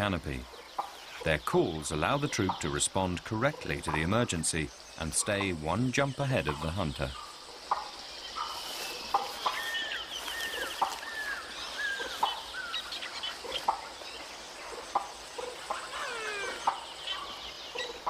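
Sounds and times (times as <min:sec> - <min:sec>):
lemurs clucking alarm calls: 0:14.6 - 0:18.0.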